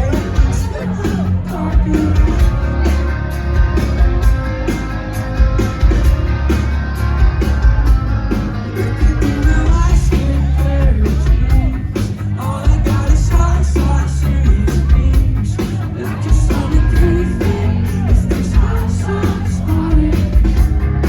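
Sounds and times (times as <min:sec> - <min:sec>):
rock band playing: 0:00.0 - 0:21.0
person singing: 0:08.8 - 0:21.0.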